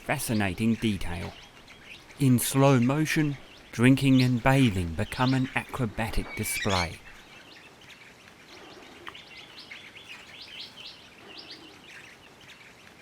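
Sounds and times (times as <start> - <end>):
parrots chattering: 3.1 - 7.2.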